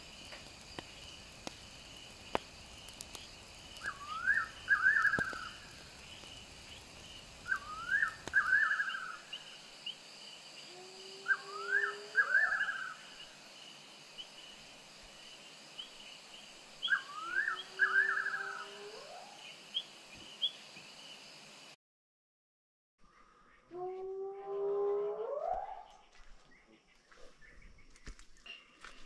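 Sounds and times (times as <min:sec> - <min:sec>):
insect trill: 0:00.0 - 0:21.8.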